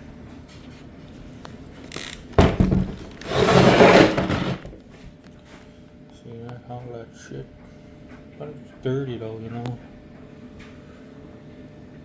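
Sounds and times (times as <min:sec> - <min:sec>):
scraping and rubbing: 0:01.9 - 0:04.8.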